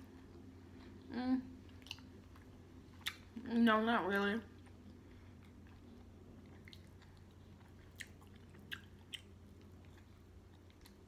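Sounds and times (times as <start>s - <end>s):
chewing steak: 1.6s - 3.4s, 4.5s - 11.0s.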